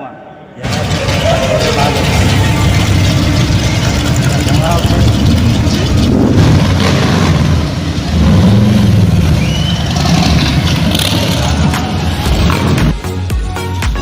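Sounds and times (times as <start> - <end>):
motor vehicle engine running: 0.6 - 14.0.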